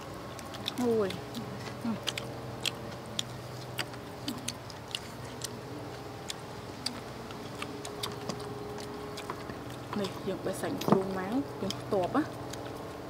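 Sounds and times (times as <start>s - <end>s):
faint steady hum: 0.0s - 13.0s
chewing clicks and smacks: 0.2s - 13.0s.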